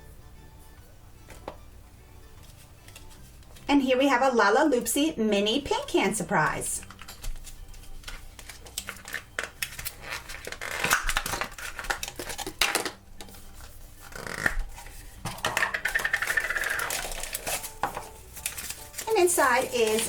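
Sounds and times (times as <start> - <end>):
rustling: 16.2 - 20.0.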